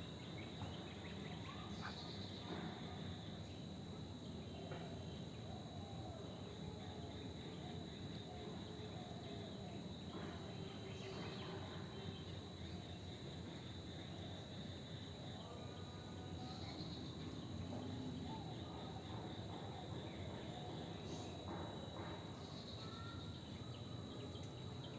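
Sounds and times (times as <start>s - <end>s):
high insect drone: 0.0s - 24.9s.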